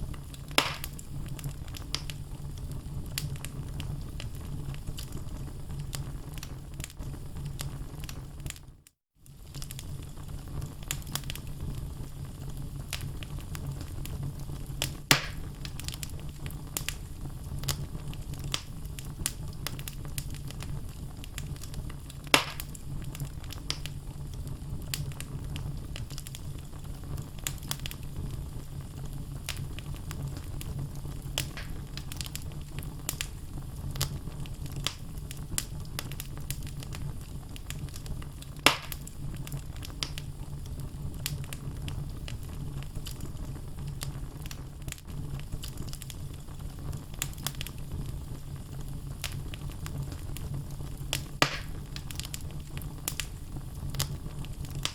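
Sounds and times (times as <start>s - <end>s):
burning logs crackling: 0.0s - 54.9s
low rumble of flames: 0.0s - 54.9s
loud sharp pops: 0.5s - 1.0s, 15.1s - 15.5s, 22.3s - 22.8s, 31.4s - 31.9s, 38.6s - 39.0s, 51.4s - 51.8s.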